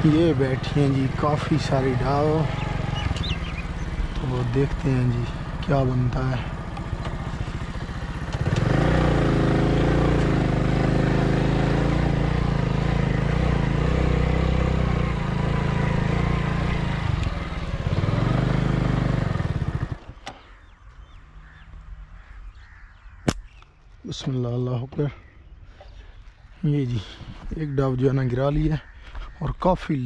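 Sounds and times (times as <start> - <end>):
motorcycle engine running: 0.0 - 22.8
sharp click: 23.2 - 23.8.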